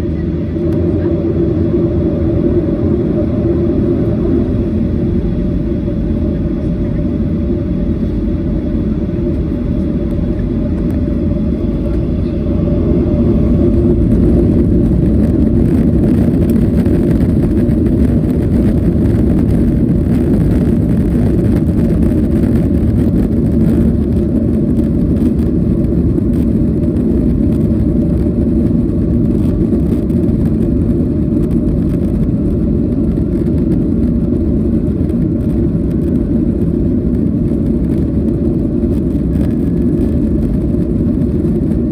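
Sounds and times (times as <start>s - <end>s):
cabin hum: 0.0s - 21.1s
airplane engine and airflow rumble: 0.0s - 41.9s.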